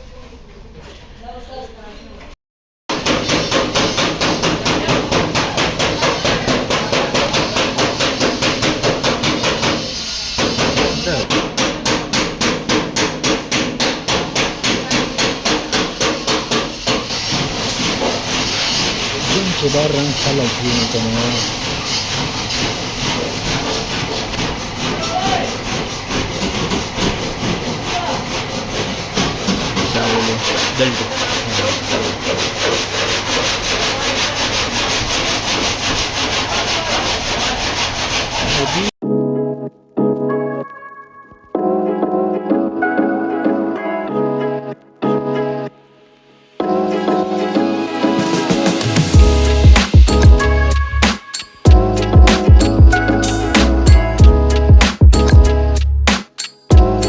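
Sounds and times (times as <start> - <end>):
hammer beating metal panel: 2.9 - 38.9
steady rasping noise: 2.9 - 39.0, 47.9 - 57.0.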